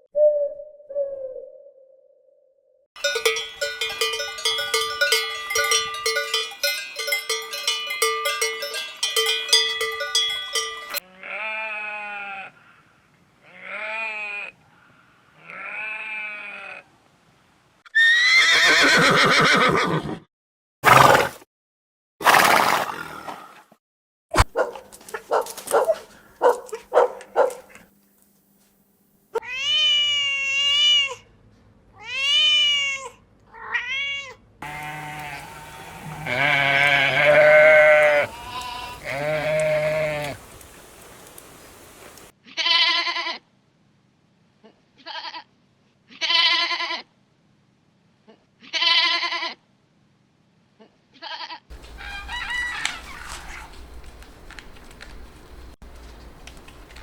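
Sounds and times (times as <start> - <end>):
bleat-like calls: 11.0 - 16.9, 32.0 - 40.4, 42.4 - 43.5, 44.6 - 45.5, 46.1 - 47.1, 48.3 - 49.6, 50.8 - 53.7
animal calls rising and falling: 17.9 - 20.0, 34.6 - 40.8, 51.7 - 53.9
clicking animal calls: 24.4 - 27.9, 34.6 - 42.3, 51.7 - 55.4
rough animal call: 34.6 - 40.5, 51.7 - 54.0.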